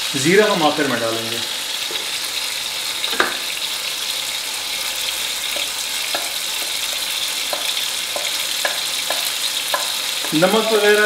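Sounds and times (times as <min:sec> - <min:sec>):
tomatoes sizzling: 0:00.0 - 0:11.0
spatula clicking on plate: 0:05.6 - 0:10.4.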